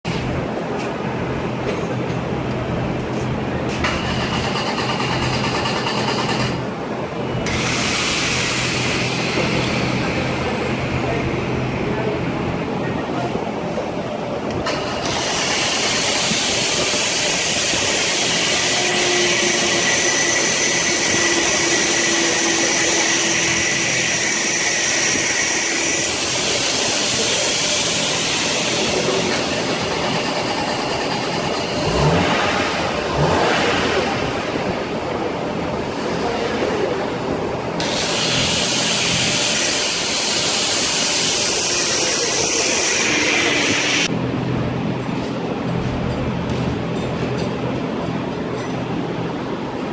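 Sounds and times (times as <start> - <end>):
engine running: 0.1 - 49.9
loud high hiss: 15.0 - 29.8, 37.8 - 44.1.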